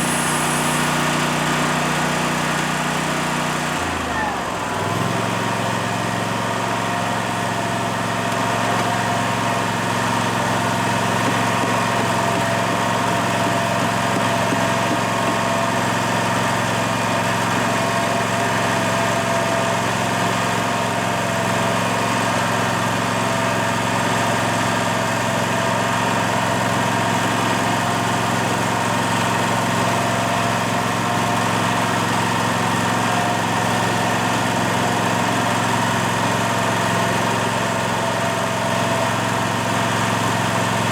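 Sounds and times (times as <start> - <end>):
fixed whine: 0.0 - 2.2.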